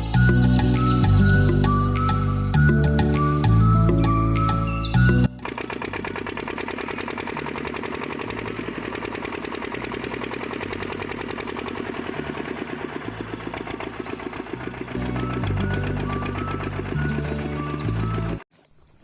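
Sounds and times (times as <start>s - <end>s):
background music: 0.0s - 9.3s, 14.4s - 18.4s
small engine chugging: 5.2s - 18.4s.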